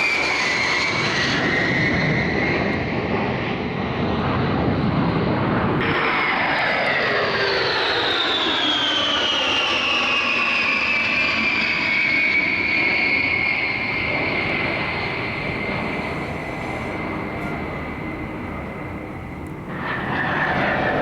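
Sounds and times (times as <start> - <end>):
jet flying past: 0.0 - 21.0.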